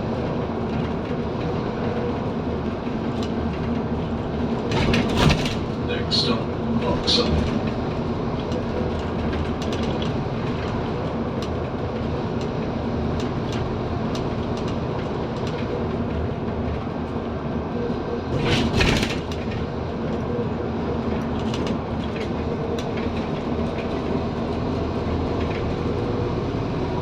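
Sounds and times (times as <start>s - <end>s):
bus body rattles: 0.0s - 27.0s
bus diesel engine running: 0.0s - 27.0s
loud clatter: 3.5s - 5.9s, 18.3s - 19.7s.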